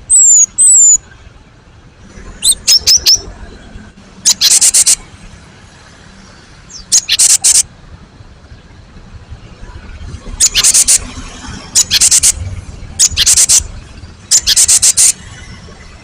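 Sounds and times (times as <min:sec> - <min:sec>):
bird whistled notes: 0:00.1 - 0:01.0, 0:02.4 - 0:03.3, 0:04.3 - 0:05.0, 0:06.7 - 0:07.6, 0:10.4 - 0:11.1, 0:11.7 - 0:12.4, 0:13.0 - 0:13.7, 0:14.3 - 0:15.2
bird harsh rattling call: 0:02.4 - 0:03.3, 0:04.2 - 0:05.1, 0:06.7 - 0:07.7, 0:10.3 - 0:12.4, 0:13.0 - 0:15.4.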